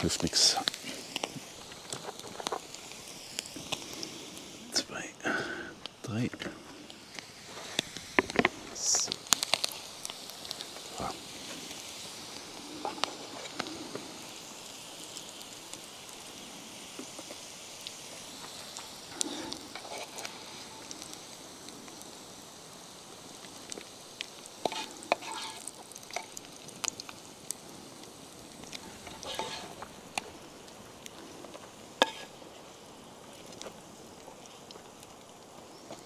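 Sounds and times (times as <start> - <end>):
potatoes sizzling in a pan: 0.0 - 36.0
utensil scraping and clinking pan: 24.7 - 26.3, 29.0 - 29.8, 32.0 - 32.3.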